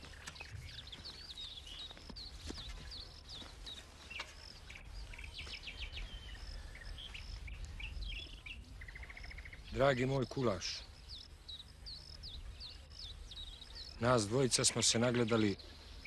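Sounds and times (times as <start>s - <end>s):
small birds chirping and singing: 0.0s - 16.0s.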